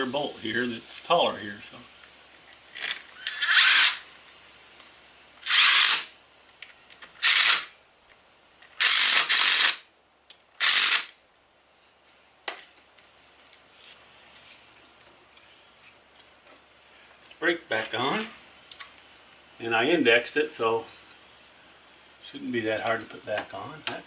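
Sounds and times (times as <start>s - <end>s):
power drill driving bolts: 2.8s - 4.0s, 5.4s - 6.1s, 7.1s - 7.7s, 8.8s - 9.9s, 10.6s - 11.2s.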